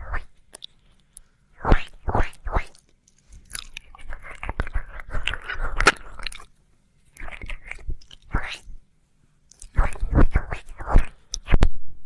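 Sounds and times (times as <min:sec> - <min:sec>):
wet licking mouth sounds: 0:01.8 - 0:06.5, 0:07.1 - 0:08.8, 0:09.5 - 0:11.6.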